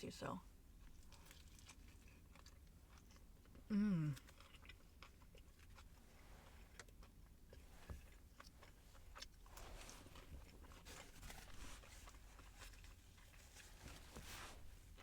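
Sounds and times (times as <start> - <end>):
chewing crispy food: 0.6 - 14.1
person humming: 3.7 - 4.2.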